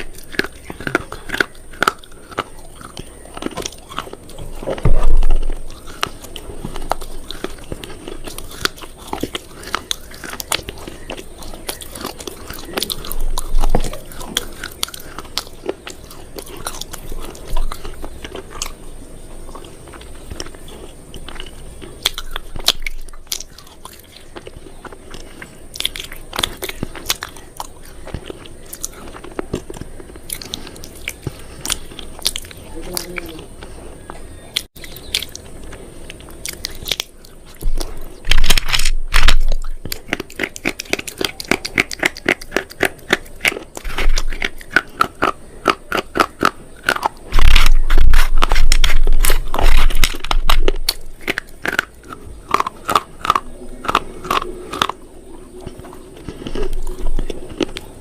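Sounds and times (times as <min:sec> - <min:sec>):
crisp snapping and crunching: 0:00.0 - 0:58.0
dull thumps: 0:04.4 - 0:05.7.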